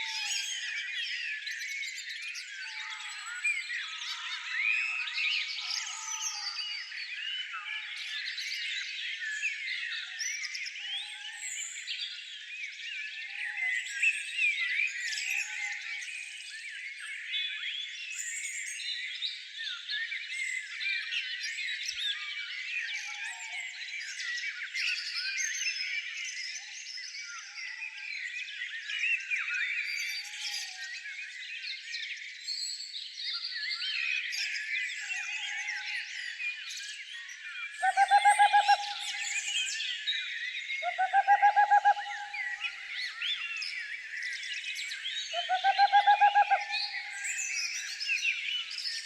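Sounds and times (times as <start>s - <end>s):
songbirds chirping and trilling: 0.0s - 49.0s
low pulsing bird call: 37.8s - 39.6s, 40.8s - 43.0s, 45.3s - 47.3s.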